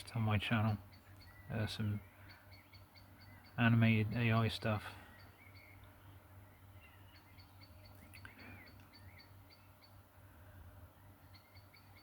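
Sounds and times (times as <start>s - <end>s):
birds chirping: 0.0s - 12.0s
steady low hum: 0.0s - 12.0s.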